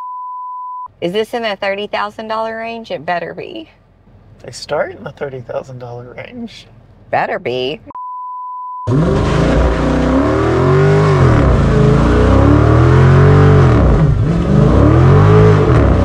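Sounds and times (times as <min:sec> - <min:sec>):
car engine revving: 0:08.9 - 0:16.0.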